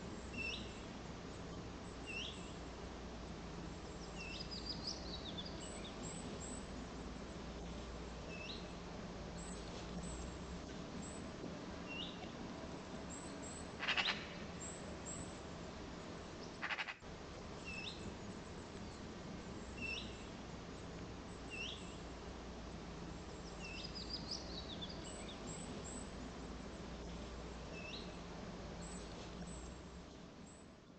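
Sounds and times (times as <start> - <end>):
steady low hum: 0.0 - 30.9
small bird chirping: 0.1 - 2.6, 3.8 - 6.8, 21.3 - 22.1, 23.3 - 26.3
bird twitter: 0.3 - 0.9, 2.0 - 2.6, 4.0 - 6.7, 13.1 - 15.3, 16.4 - 17.0, 19.8 - 20.3, 21.4 - 22.0, 23.3 - 26.1, 27.7 - 28.2
harsh bird calls: 13.4 - 15.3, 16.4 - 17.0.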